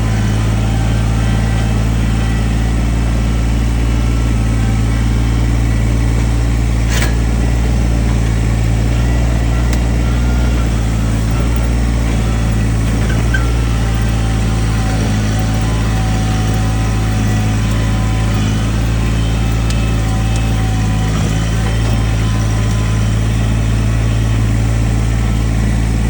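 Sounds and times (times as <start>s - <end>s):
diesel engine running steadily: 0.0s - 26.0s.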